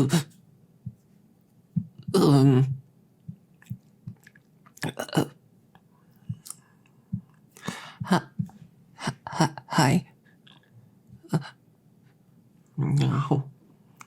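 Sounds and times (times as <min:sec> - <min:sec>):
wet mouth clicks and smacks: 0:03.6 - 0:05.0, 0:06.3 - 0:06.7
mouth chewing fries: 0:03.6 - 0:05.4
person humming: 0:08.0 - 0:09.6.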